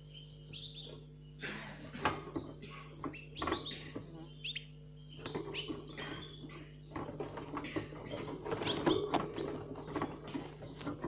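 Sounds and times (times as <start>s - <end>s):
nestling birds chirping: 0.0s - 11.0s.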